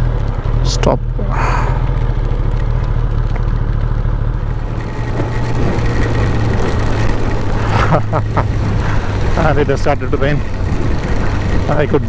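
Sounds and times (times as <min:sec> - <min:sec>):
motorcycle engine running: 0:00.0 - 0:12.0
heavy rain noise: 0:04.6 - 0:12.0.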